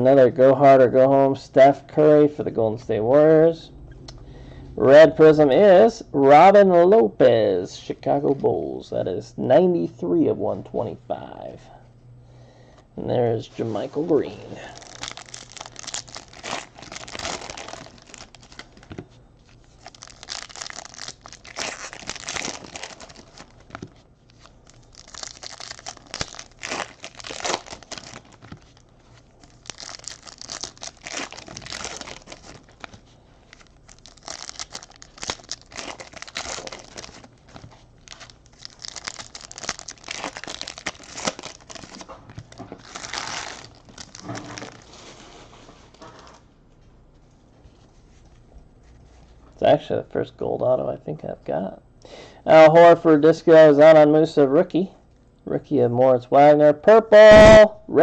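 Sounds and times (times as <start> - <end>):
foil wrappers crinkling and tearing: 14.2 - 45.5.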